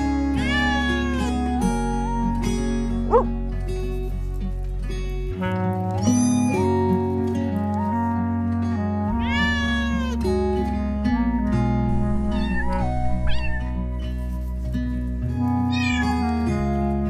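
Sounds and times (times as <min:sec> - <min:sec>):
background music: 0:00.0 - 0:17.0
cat meowing: 0:00.3 - 0:01.6, 0:09.1 - 0:10.2, 0:12.2 - 0:13.9, 0:15.7 - 0:16.4.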